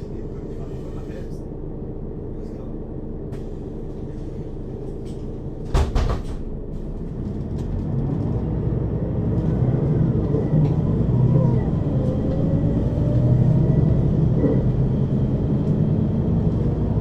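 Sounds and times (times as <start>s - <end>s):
bus engine idling: 0.0s - 17.0s
clatter of knocks: 5.2s - 6.5s
bus engine revving and pulling away: 6.6s - 17.0s.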